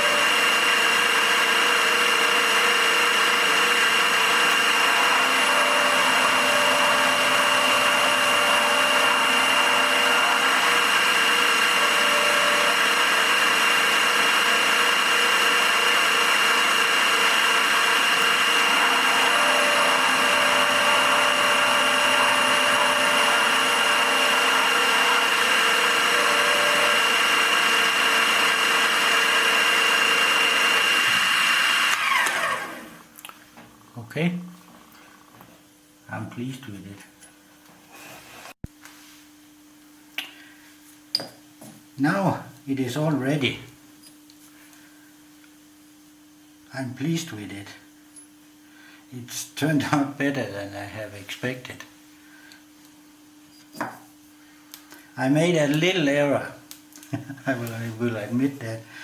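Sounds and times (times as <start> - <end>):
milling machine whine: 0.0 - 35.5.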